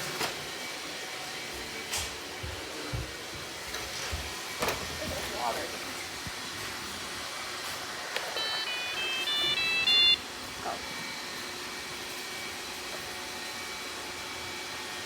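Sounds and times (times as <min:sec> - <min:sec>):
electronic beeping melody: 0:08.4 - 0:10.2.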